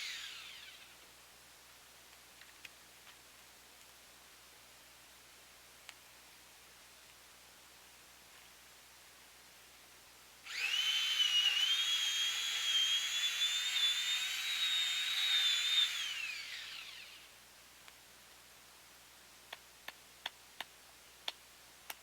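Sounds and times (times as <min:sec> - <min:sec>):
chainsaw running: 0:00.0 - 0:00.8, 0:10.5 - 0:17.3.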